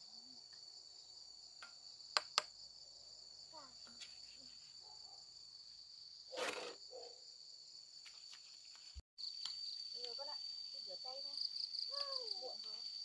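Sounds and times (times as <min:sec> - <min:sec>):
scrape or rustle: 0:06.3 - 0:06.8.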